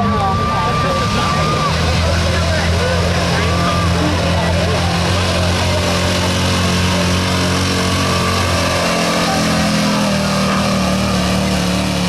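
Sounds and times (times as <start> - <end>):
pickup engine revving under load: 0.0 - 12.0.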